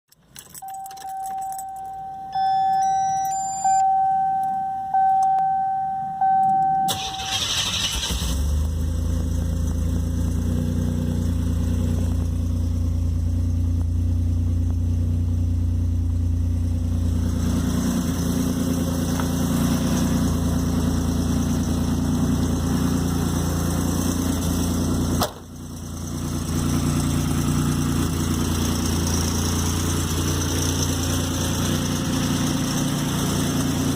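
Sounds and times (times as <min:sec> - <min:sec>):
car engine starting and idling: 0:00.1 - 0:33.9
car warning chime: 0:00.4 - 0:08.1.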